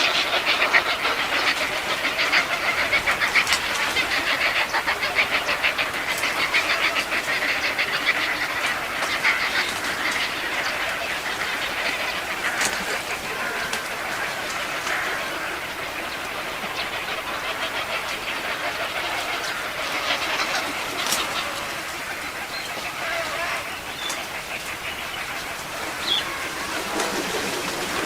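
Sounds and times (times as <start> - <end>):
birds calling and chattering: 0.0 - 28.0.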